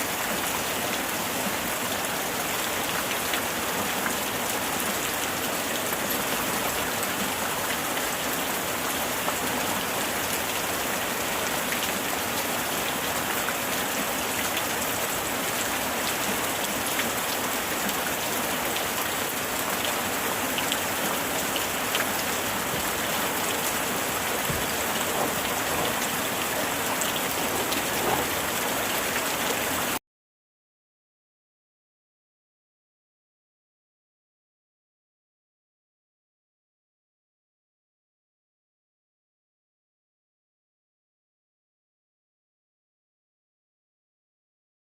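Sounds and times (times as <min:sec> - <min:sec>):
heavy rain falling: 0:00.0 - 0:30.0
rain drop ticks: 0:21.9 - 0:29.3.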